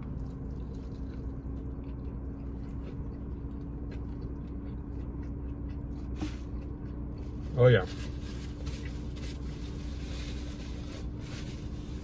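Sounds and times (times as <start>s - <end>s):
person chewing: 0.0s - 7.5s
low hum with held tone: 0.0s - 12.0s.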